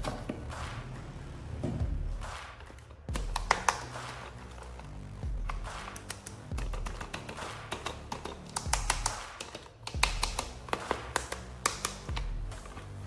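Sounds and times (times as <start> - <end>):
background music with bass line: 0.0 - 13.0
plastic packaging clicks and taps: 5.8 - 12.3.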